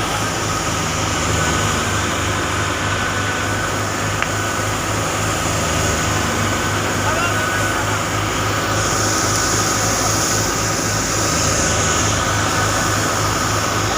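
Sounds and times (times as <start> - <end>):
farm machinery engine humming: 0.0 - 13.9.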